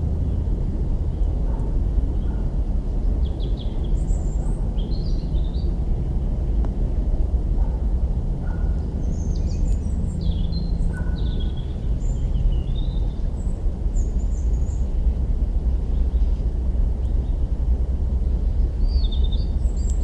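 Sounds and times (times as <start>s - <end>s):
steady low rumble: 0.0s - 20.0s
small birds chirping: 8.7s - 15.0s, 18.6s - 20.0s.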